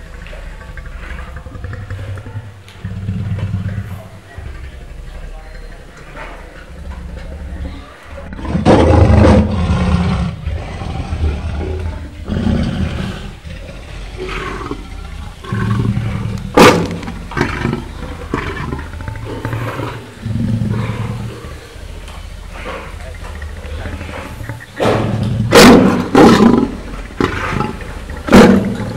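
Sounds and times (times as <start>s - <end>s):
lion growling: 0.0s - 28.9s
sharp knock: 24.8s - 26.0s.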